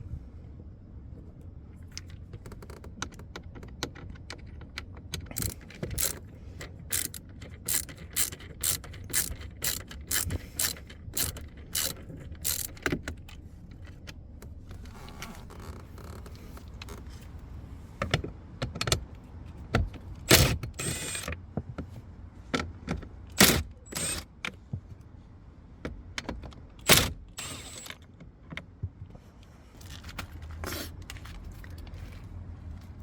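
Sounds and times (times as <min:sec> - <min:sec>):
ratchet-like mechanical clicks: 0:05.2 - 0:06.2, 0:06.8 - 0:13.4, 0:20.3 - 0:21.3, 0:23.4 - 0:24.2, 0:26.8 - 0:28.0.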